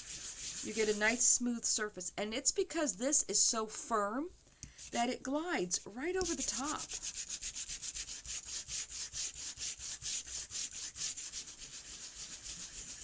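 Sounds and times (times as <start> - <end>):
sanding disc scratching cardstock: 0.0 - 1.1, 6.2 - 13.0.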